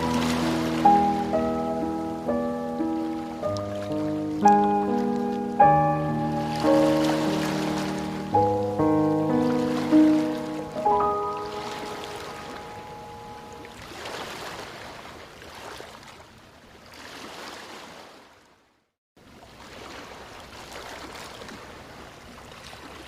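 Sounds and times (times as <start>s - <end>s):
held music notes: 0.0s - 13.8s
running water rushing: 0.0s - 15.9s.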